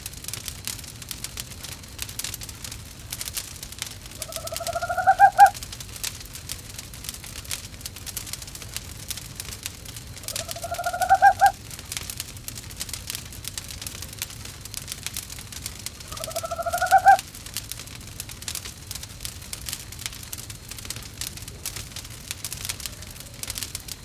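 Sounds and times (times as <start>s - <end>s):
wood fire crackling: 0.0s - 24.0s
owl calling: 4.2s - 5.6s, 10.2s - 11.6s, 16.1s - 17.2s.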